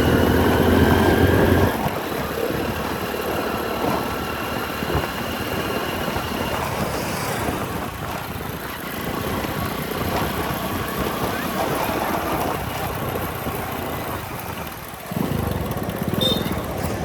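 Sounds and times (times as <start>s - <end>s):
motorcycle engine: 0.0s - 17.0s
traffic and road noise: 0.0s - 17.0s.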